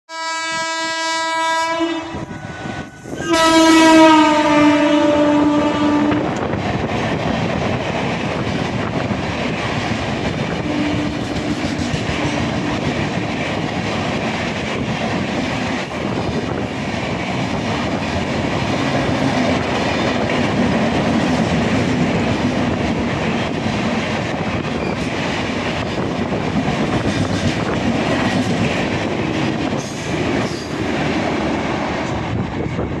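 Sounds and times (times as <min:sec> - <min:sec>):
locomotive horn: 0:00.1 - 0:06.4, 0:10.5 - 0:12.8
train passing at speed: 0:00.1 - 0:33.0.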